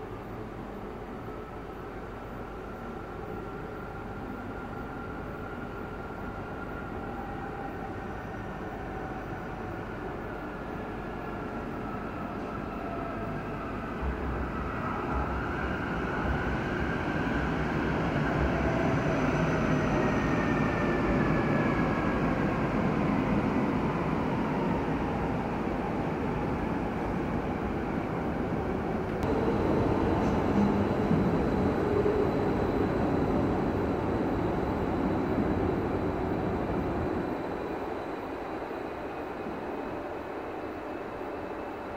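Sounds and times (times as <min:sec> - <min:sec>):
train rumbling over points: 0:29.0 - 0:38.3
whining tones sliding in pitch: 0:29.2 - 0:37.9.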